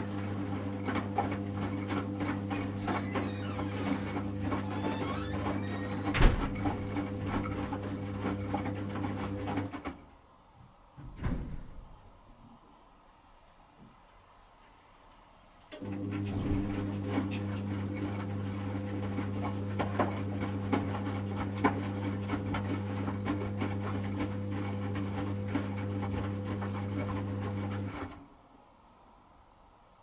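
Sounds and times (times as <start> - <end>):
washing machine motor hum: 0.0 - 9.9, 15.8 - 28.2.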